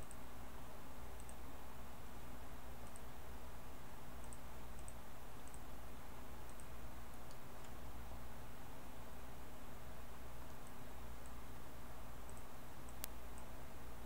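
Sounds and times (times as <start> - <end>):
computer mouse clicks: 0.0 - 0.2, 1.2 - 1.4, 2.8 - 3.1, 4.2 - 5.7, 6.5 - 7.8, 12.3 - 13.5
low electrical hum: 0.0 - 14.0
microphone hiss: 0.0 - 14.0.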